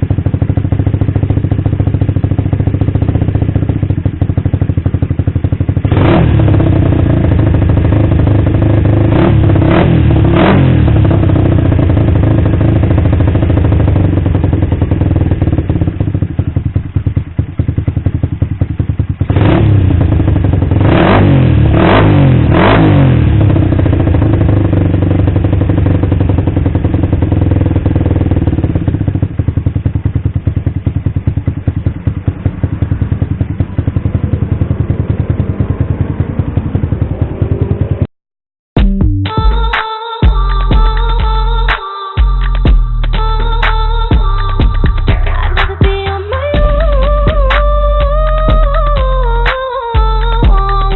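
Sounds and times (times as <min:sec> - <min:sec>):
motorcycle engine idling: 0:00.0 - 0:38.1, 0:39.2 - 0:50.9
throttle blips revving: 0:09.1 - 0:11.7, 0:20.8 - 0:23.2.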